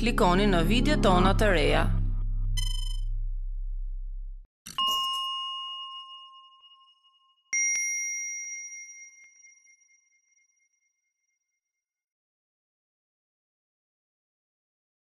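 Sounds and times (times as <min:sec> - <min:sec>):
bell-like ding: 0:04.8 - 0:10.4.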